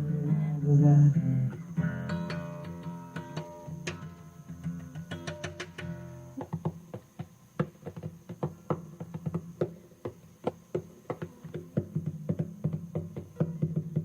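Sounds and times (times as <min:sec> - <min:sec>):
acoustic guitar plucked notes: 0:00.0 - 0:06.7.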